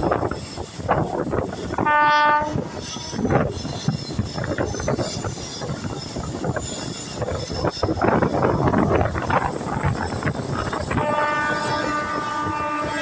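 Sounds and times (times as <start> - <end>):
train coach rumbling and rattling: 0.0 - 13.0
wind on microphone: 0.0 - 13.0
train horn blast: 1.8 - 3.2, 10.9 - 13.0.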